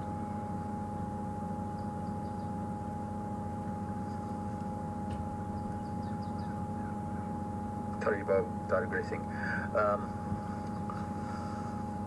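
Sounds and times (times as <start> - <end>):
steady high tone: 0.0 - 12.0
vehicle engine idling: 0.0 - 12.0
faint bird chirps: 1.8 - 2.6, 5.4 - 7.6.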